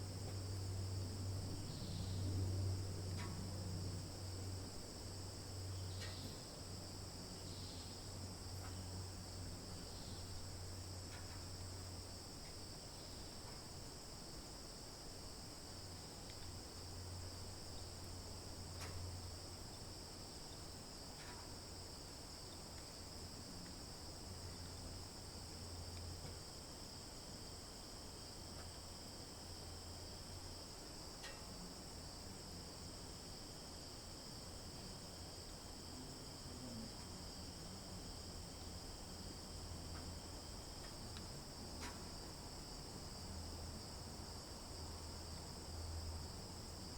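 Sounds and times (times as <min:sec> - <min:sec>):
insect chorus trilling: 0:00.5 - 0:28.4.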